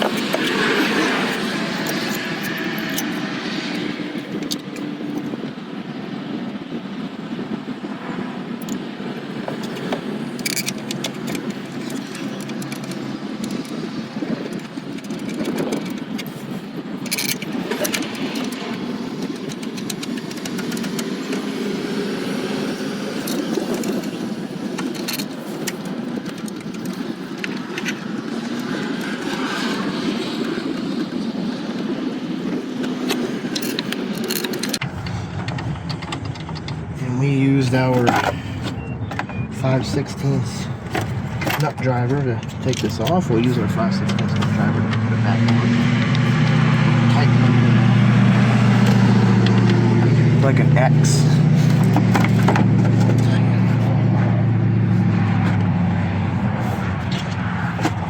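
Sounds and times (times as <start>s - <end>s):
hand tools clicking and knocking: 0.0s - 5.4s, 9.4s - 21.9s, 23.2s - 30.8s, 32.8s - 37.0s, 40.8s - 54.0s
steady background noise: 0.0s - 58.0s.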